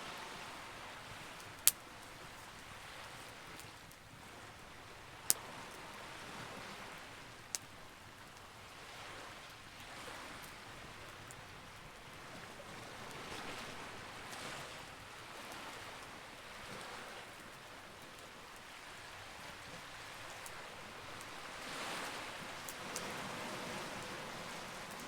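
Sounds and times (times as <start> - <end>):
campfire crackling: 0.1 - 16.6, 17.2 - 25.0
burning wood popping: 22.1 - 25.0.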